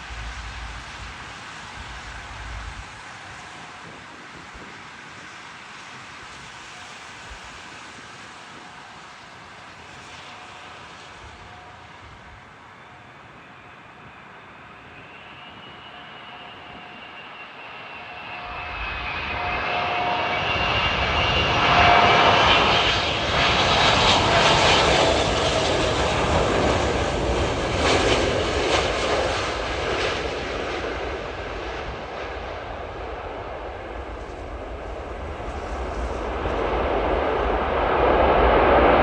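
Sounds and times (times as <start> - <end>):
engine whine falling in pitch: 0.0 - 3.0
jet passing overhead: 0.0 - 39.0.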